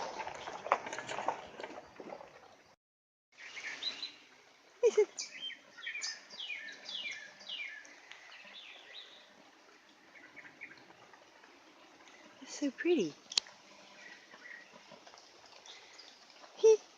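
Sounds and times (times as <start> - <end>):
songbirds singing: 3.4 - 11.2, 12.1 - 14.9.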